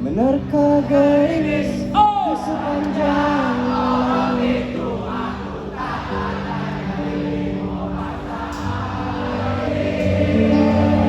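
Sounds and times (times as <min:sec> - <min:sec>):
crowd singing along: 0:00.0 - 0:11.0
live band playing slow song: 0:07.7 - 0:11.0.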